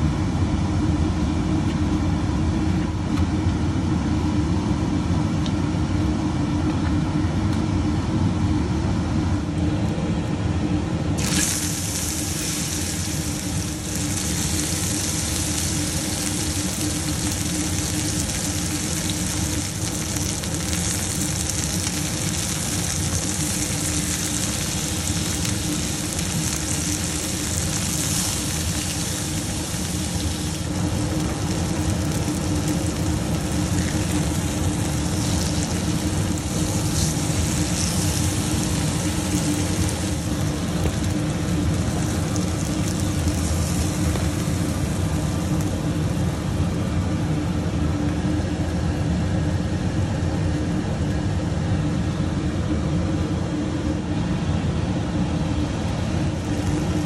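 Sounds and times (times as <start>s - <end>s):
low steady hum: 0.0s - 57.0s
chicken sizzling in oil: 11.2s - 46.8s.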